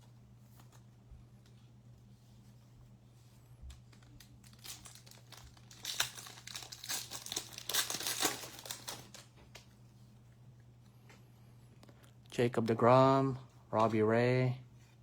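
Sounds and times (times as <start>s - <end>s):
foil wrapper crinkling and tearing: 3.9s - 9.3s.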